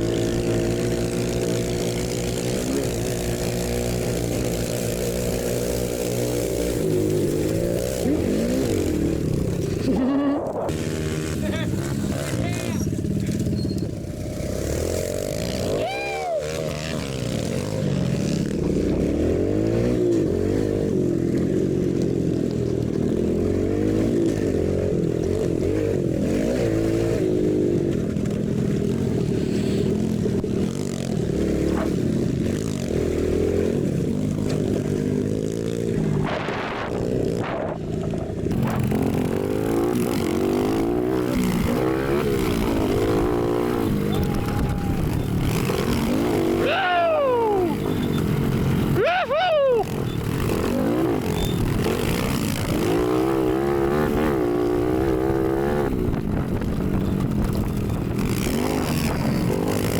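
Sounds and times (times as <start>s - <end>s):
muffled dirt bike engines revving: 0.0s - 59.9s.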